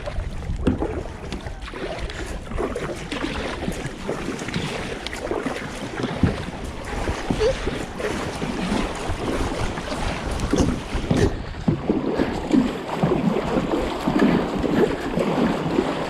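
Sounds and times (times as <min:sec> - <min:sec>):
water lapping against hull: 0:00.0 - 0:16.0
wind buffeting microphone: 0:00.0 - 0:16.0.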